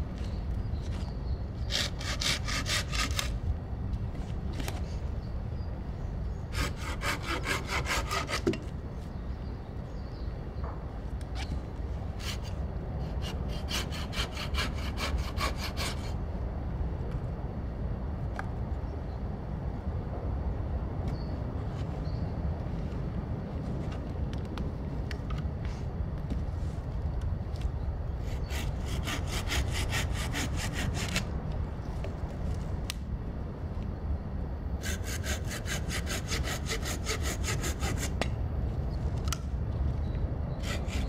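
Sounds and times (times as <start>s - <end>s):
hand saw cutting wood: 1.6s - 3.4s, 6.5s - 8.6s, 13.1s - 16.1s, 28.3s - 31.2s, 34.8s - 38.2s.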